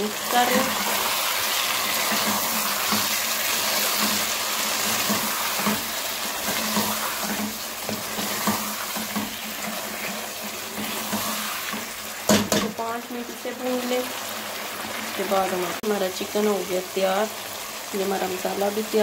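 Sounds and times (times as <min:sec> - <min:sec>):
food sizzling in a pot: 0:00.0 - 0:19.0
spatula scraping pot: 0:00.3 - 0:12.6.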